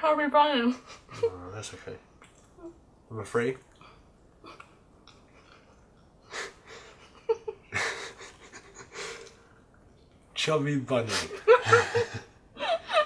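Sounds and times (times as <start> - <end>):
wheezy nasal breathing: 8.9 - 9.5.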